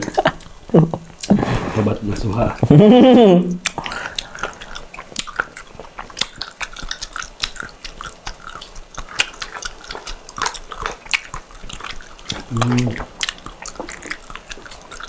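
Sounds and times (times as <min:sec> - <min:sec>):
people chewing: 0:00.0 - 0:15.0
wet smacks and clicks: 0:03.6 - 0:15.0.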